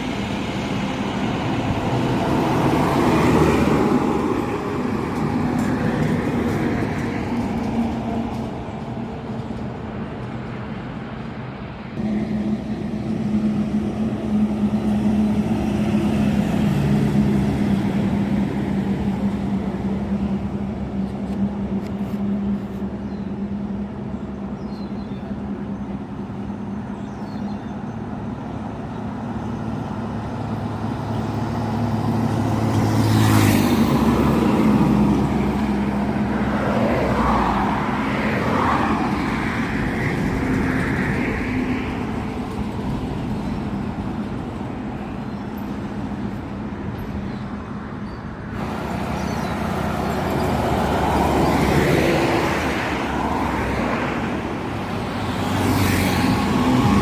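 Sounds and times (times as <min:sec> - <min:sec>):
truck diesel engine running: 0:00.0 - 0:32.8
road noise: 0:00.0 - 0:57.0.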